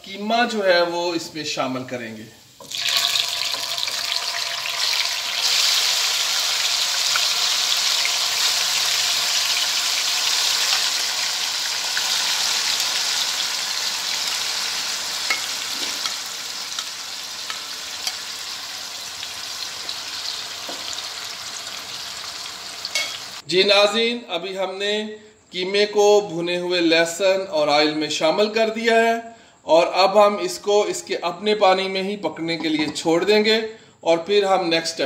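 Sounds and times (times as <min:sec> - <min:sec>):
meat sizzling in oil: 0:02.4 - 0:23.4.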